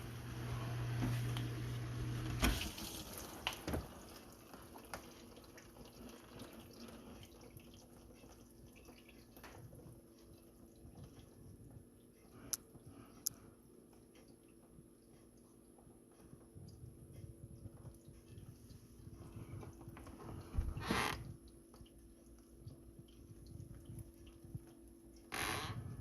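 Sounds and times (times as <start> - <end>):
dishwasher pump humming: 0.0 - 26.0
water spraying: 0.9 - 4.4
water dripping and trickling: 2.3 - 26.0.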